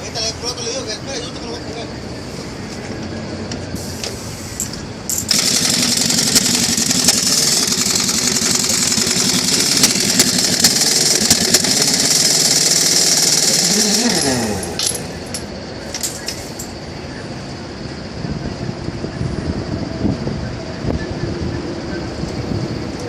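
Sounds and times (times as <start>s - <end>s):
pneumatic impact wrench rattling: 3.8s - 16.8s.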